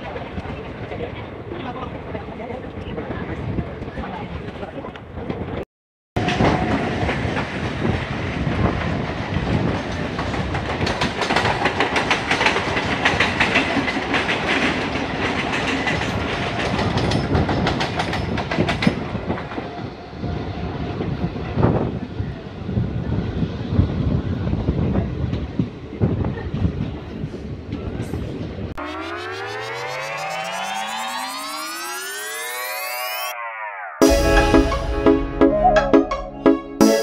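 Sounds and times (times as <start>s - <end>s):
train wheels rumbling on rail: 6.2s - 28.6s.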